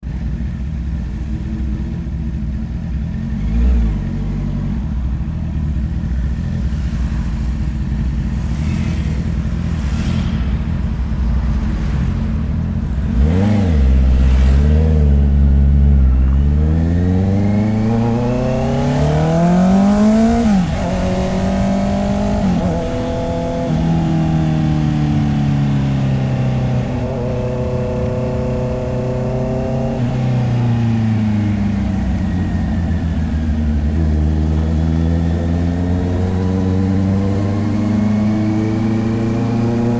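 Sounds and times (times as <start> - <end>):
motorcycle engine idling: 4.3 - 16.8
motorcycle throttle blips: 6.1 - 39.9
motorcycle accelerating away: 8.3 - 39.9.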